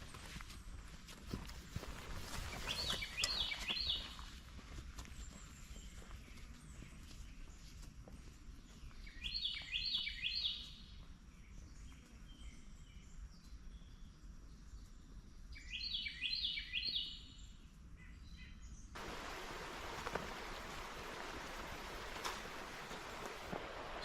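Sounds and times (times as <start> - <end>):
songbird singing rising notes: 2.5 - 4.2
creek water rushing: 19.0 - 24.0.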